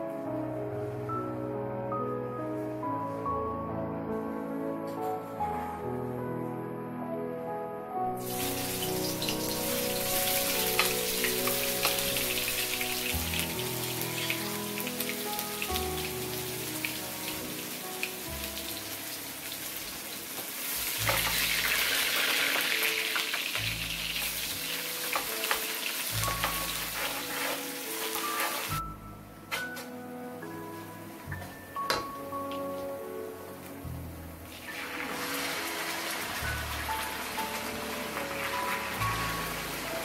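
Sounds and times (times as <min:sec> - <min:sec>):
soft background music: 0:00.0 - 0:40.0
garlic sizzling in hot oil: 0:08.2 - 0:28.9, 0:34.5 - 0:40.0.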